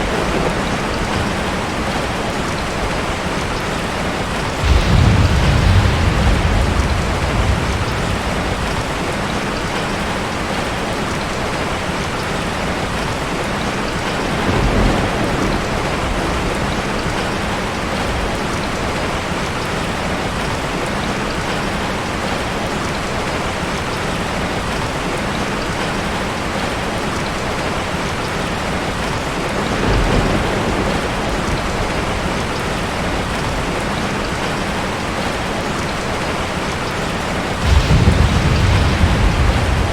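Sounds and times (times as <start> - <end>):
thunder rumbling: 0.0 - 12.2, 12.9 - 19.4, 28.9 - 35.3, 37.2 - 39.9
heavy rain falling: 0.0 - 39.9.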